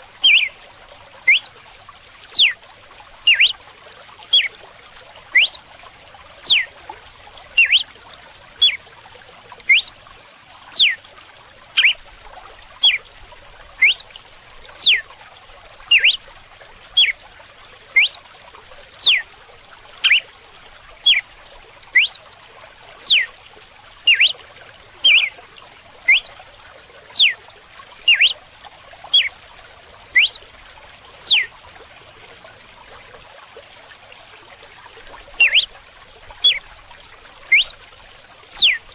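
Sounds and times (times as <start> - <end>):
trickling running water: 0.0 - 38.9
bird singing whip-like notes: 0.2 - 0.5, 1.3 - 1.5, 2.3 - 2.6, 3.3 - 3.6, 5.3 - 5.6, 6.4 - 6.7, 7.6 - 7.8, 9.7 - 9.9, 13.8 - 14.0, 14.8 - 15.0, 15.9 - 16.2, 18.0 - 18.2, 19.0 - 19.2, 22.0 - 22.2, 23.0 - 23.3, 24.1 - 24.4, 25.0 - 25.3, 26.1 - 26.3, 28.1 - 28.4, 30.2 - 30.4, 31.2 - 31.5, 35.4 - 35.7, 37.5 - 37.8, 38.6 - 38.8.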